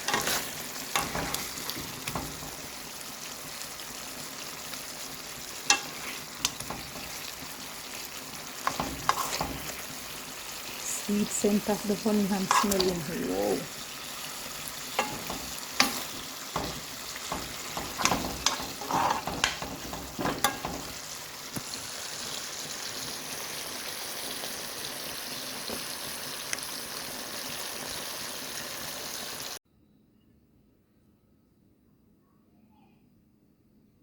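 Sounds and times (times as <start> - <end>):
chicken wings sizzling in a pan: 0.0 - 29.6
utensil clicking and scraping: 17.3 - 20.6.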